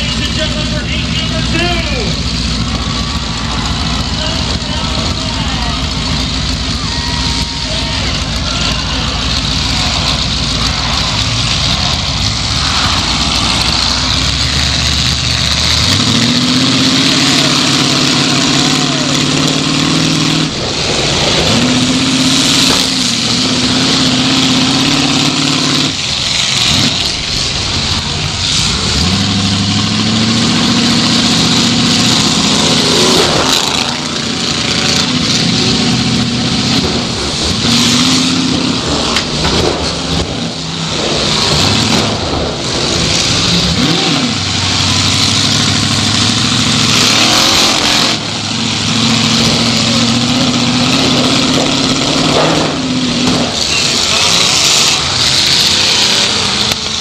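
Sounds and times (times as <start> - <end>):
car engine revving: 0.0 - 57.0
sudden bangs: 30.5 - 45.6.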